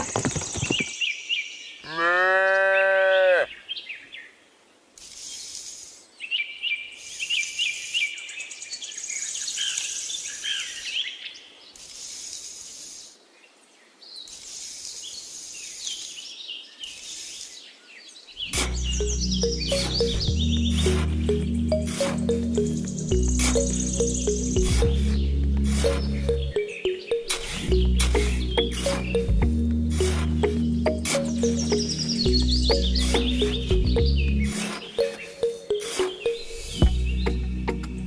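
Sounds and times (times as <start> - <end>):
cow mooing: 1.9 - 3.5
high chirping birdsong: 3.5 - 38.0.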